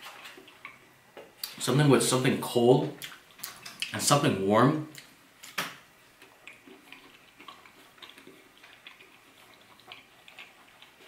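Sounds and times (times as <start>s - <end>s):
soft wet chewing: 0.0s - 1.6s, 2.8s - 4.0s, 6.0s - 11.0s.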